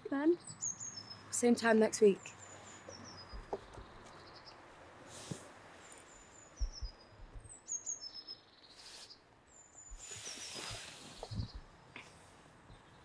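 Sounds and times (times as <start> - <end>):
small birds chirping: 0.0 - 13.0
low thumps: 6.6 - 7.6
wind noise on microphone: 9.9 - 11.7.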